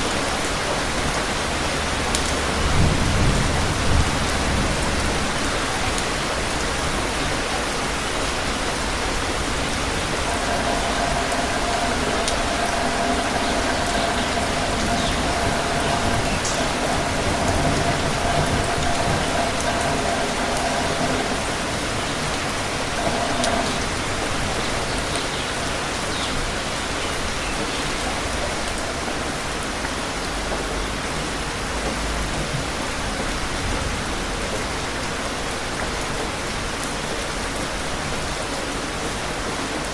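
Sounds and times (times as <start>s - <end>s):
steady rain falling: 0.0s - 39.9s
faint steady tone: 9.6s - 26.8s.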